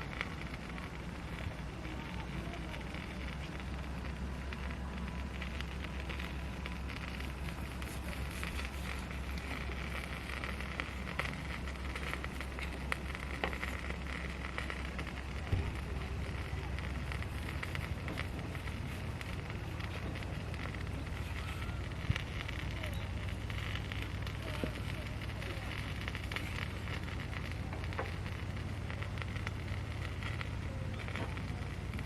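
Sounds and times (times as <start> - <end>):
fire pops: 0.0 - 32.0
wood fire crackling: 0.0 - 32.0.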